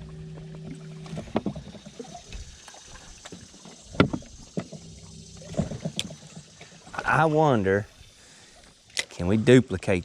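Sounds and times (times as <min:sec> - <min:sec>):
knocks and clunks on a boat: 0:00.0 - 0:07.2
low motor hum: 0:00.0 - 0:08.3.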